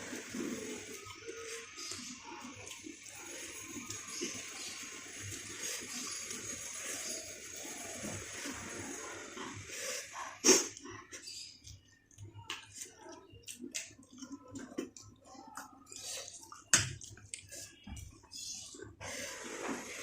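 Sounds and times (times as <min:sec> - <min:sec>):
chewing and lip smacking: 0:10.5 - 0:19.0.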